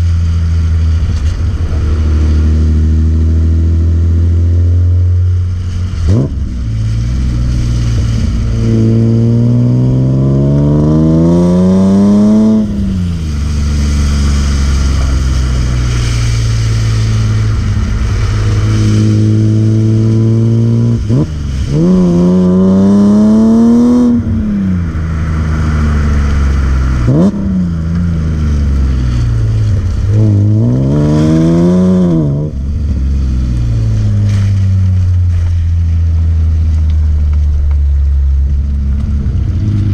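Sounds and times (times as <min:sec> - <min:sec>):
car engine revving hard: 0:05.8 - 0:34.6.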